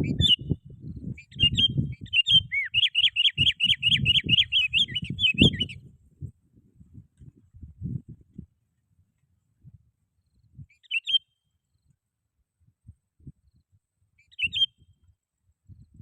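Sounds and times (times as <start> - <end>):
bulbul calling: 1.2 - 5.8, 10.7 - 11.2, 14.2 - 14.8
faint low rumbles and thumps: 5.4 - 10.7.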